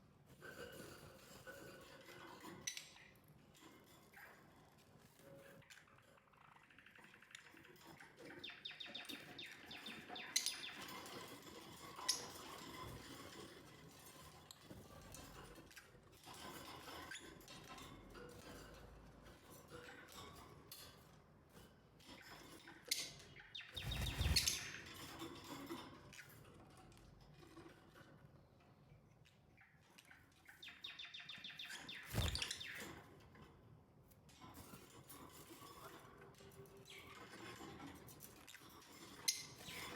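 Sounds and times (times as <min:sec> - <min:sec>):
lovebirds chirping: 0:23.4 - 0:24.9, 0:30.6 - 0:32.9.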